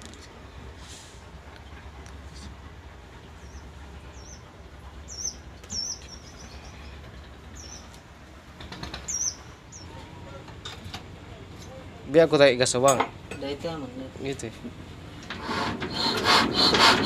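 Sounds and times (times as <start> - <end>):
small bird chirping: 3.4 - 7.0, 7.6 - 8.0, 9.0 - 10.0.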